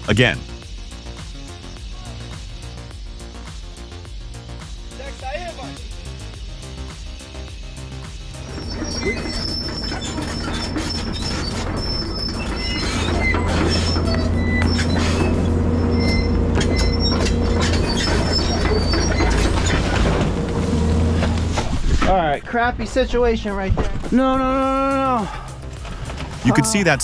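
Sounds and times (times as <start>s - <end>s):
bulldozer engine drone: 5.8s - 21.8s
metallic track squeals and clanks: 8.4s - 21.6s.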